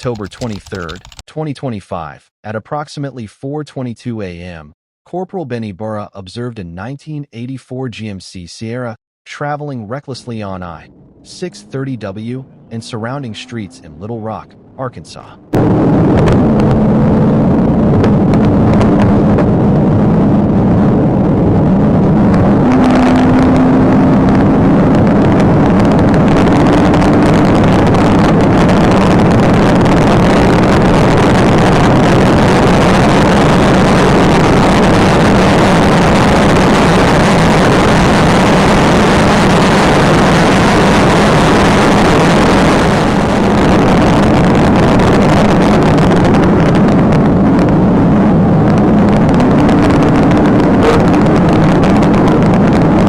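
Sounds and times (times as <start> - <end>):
car driving at high speed: 10.8 - 53.0.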